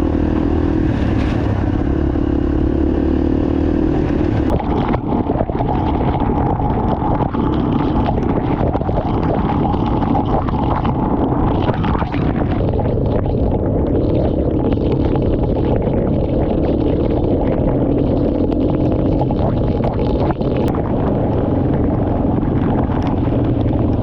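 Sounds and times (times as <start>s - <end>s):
motorbike engine running: 0.0s - 6.0s, 20.7s - 24.0s.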